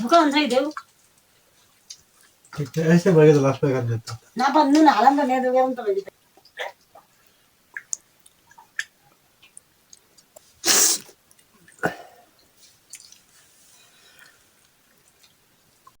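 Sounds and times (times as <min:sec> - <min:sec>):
mouth clicks and smacks eating: 0:00.6 - 0:03.4, 0:06.2 - 0:13.4, 0:14.2 - 0:16.0
person sneezing: 0:10.6 - 0:11.1.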